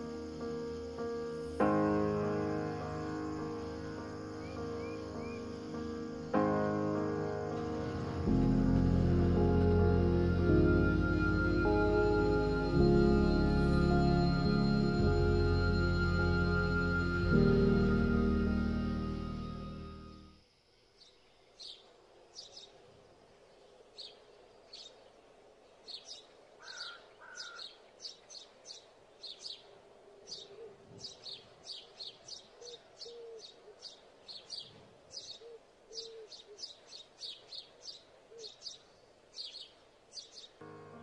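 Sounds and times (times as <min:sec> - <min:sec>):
lower soft bird calls: 0:00.0 - 0:20.3, 0:20.9 - 0:40.6
small birds chirping: 0:02.7 - 0:06.4, 0:20.9 - 0:40.6.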